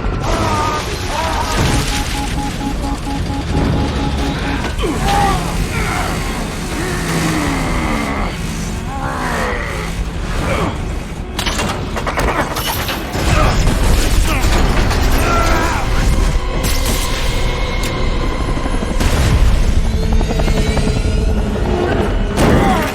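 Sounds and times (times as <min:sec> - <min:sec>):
dramatic film score: 0:00.0 - 0:22.9
pulsing beep: 0:01.5 - 0:05.7.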